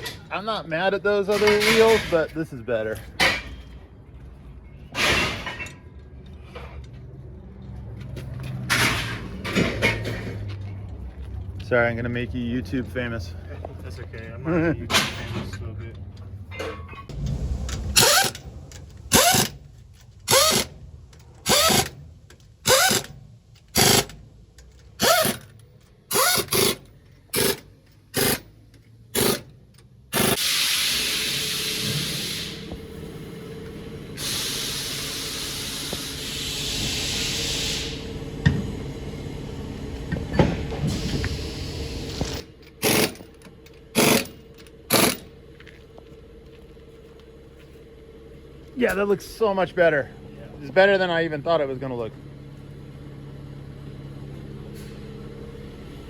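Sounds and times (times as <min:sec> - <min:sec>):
impact wrench bursts: 0:17.1 - 0:32.8, 0:34.2 - 0:38.6, 0:40.8 - 0:45.3.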